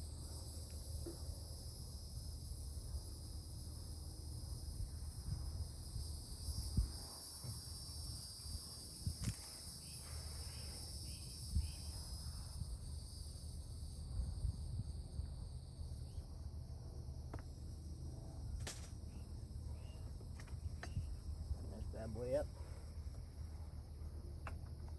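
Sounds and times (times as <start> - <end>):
low steady rumble: 0.0 - 24.9
insects shrilling: 5.6 - 16.2.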